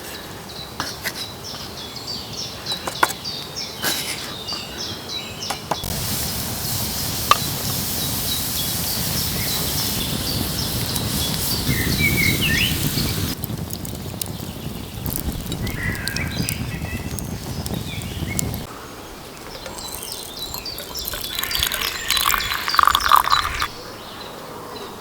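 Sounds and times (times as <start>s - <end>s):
songbirds chirping: 0.3s - 6.4s, 7.8s - 25.0s
steady rushing hiss: 5.8s - 23.8s.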